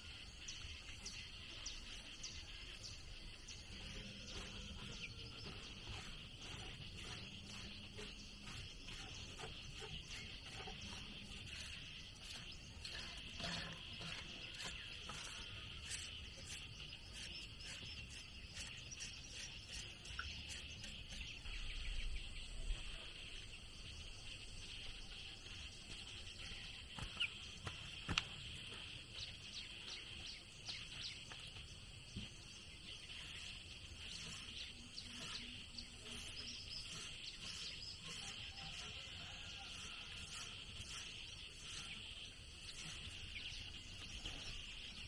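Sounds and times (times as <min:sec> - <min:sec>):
insects droning: 0:00.0 - 0:45.0.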